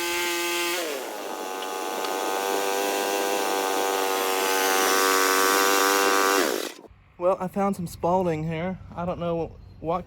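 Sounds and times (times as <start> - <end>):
blade sawing through log: 0.0 - 6.9
sawmill engine running: 0.0 - 6.9.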